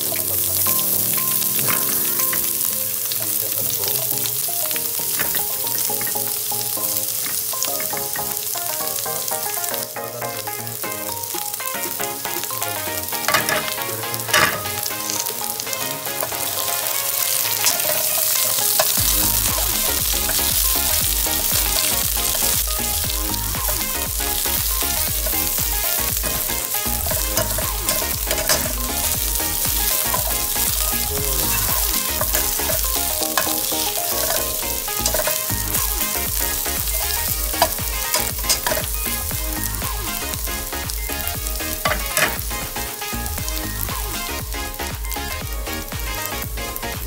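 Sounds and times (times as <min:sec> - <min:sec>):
onion and garlic sizzling: 0:00.0 - 0:47.0
spatula stirring in pan: 0:11.8 - 0:43.6.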